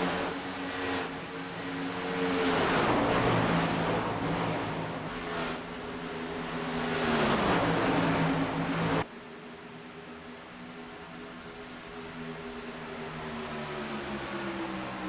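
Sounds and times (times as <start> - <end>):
truck engines roaring past: 0.0 - 9.1
road noise: 0.0 - 15.0.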